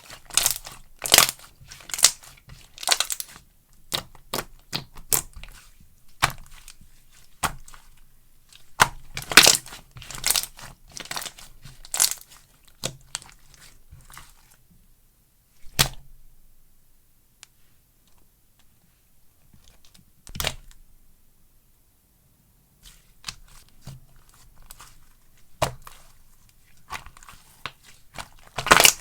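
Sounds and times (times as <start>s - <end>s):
slime crackling and popping: 0.1s - 5.4s, 8.7s - 13.1s, 26.8s - 29.0s.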